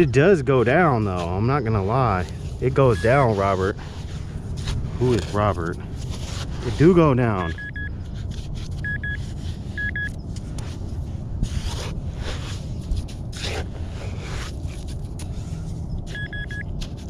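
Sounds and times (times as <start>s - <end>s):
scraping wet sand: 0.0s - 17.0s
steady low rumble: 0.0s - 17.0s
metal detector beeps: 7.4s - 7.9s, 8.8s - 9.2s, 9.8s - 10.2s, 16.1s - 16.7s.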